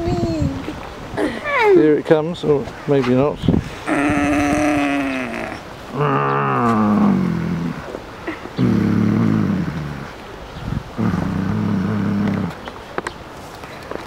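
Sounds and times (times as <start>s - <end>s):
elephant calling: 3.8s - 10.1s.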